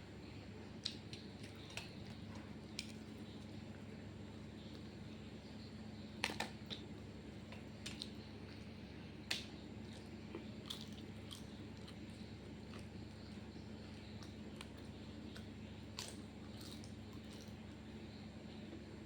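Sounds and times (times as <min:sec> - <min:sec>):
steady low hum: 0:00.0 - 0:19.0
chewing and biting: 0:06.2 - 0:17.8.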